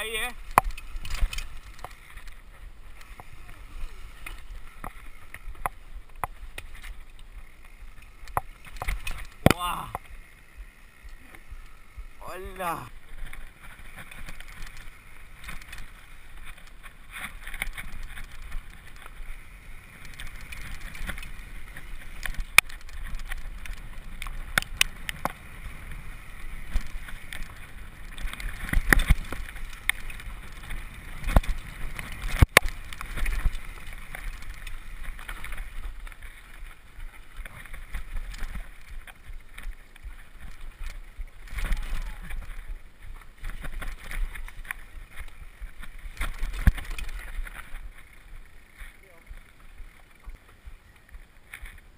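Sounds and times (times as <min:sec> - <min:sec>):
bike knocking against rocks: 0:00.0 - 0:51.9
wind rumbling on microphone: 0:00.0 - 0:51.9
tyres rushing over dirt and stones: 0:12.2 - 0:51.9.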